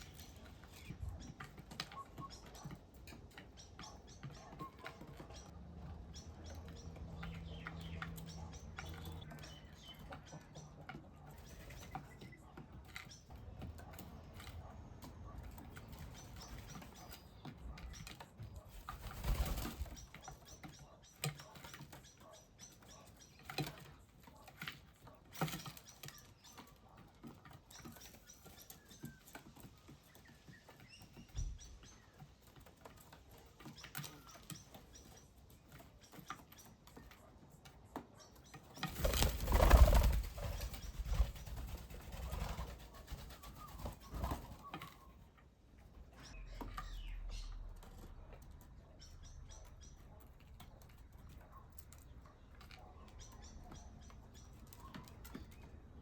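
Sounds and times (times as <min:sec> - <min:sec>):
small birds chirping: 0:00.0 - 0:56.0
wings flapping: 0:06.4 - 0:22.3, 0:38.6 - 0:45.3.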